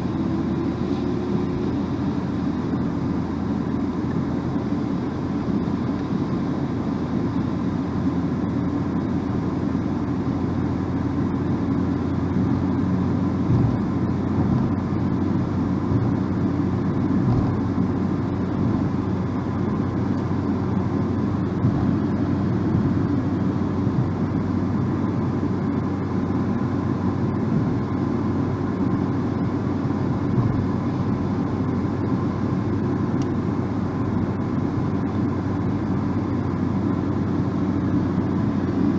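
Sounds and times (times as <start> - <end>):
car driving at speed: 0.0 - 38.9
low bumps: 13.4 - 14.8, 17.2 - 17.7.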